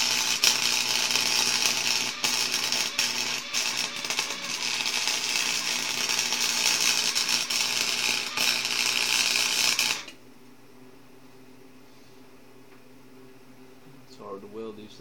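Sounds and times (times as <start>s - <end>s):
arc welding crackling sizzle: 0.0s - 10.2s.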